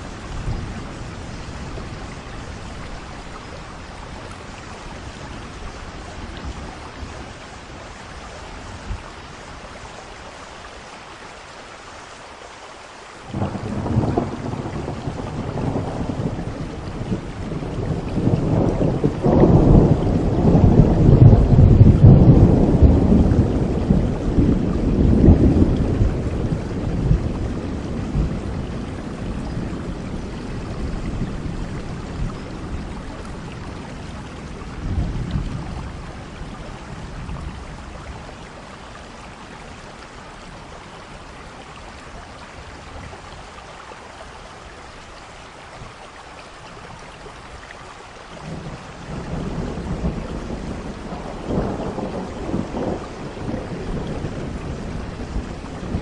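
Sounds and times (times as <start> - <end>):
steady rain: 0.0 - 56.0
rolling thunder: 13.3 - 38.6, 48.4 - 56.0.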